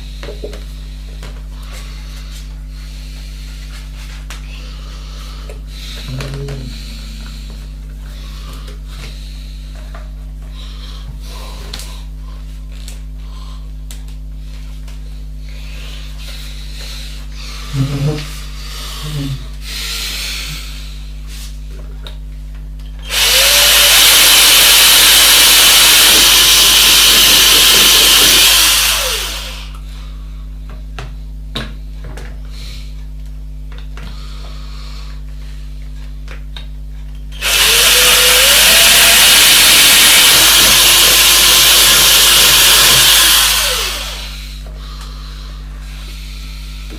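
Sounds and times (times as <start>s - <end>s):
electric power tool whining: 23.0s - 29.8s, 37.3s - 44.6s.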